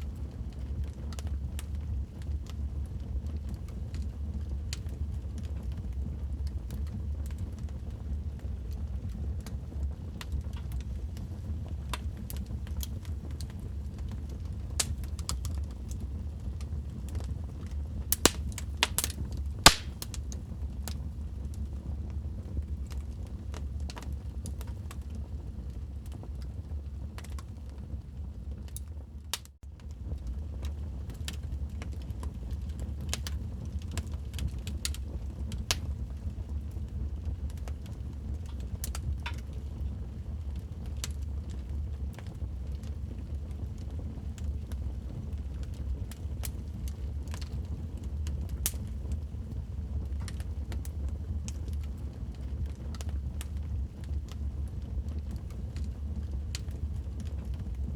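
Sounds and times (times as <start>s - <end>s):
fire low rumble: 0.0s - 57.9s
wood fire crackling: 0.0s - 57.9s
loud fire pops: 11.9s - 25.2s, 29.3s - 36.7s.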